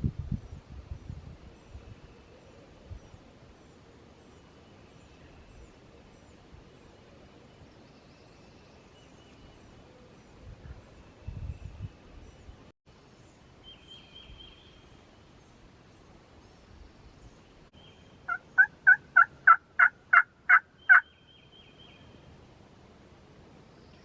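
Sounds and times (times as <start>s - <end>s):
turkey call yelps: 18.3s - 21.1s.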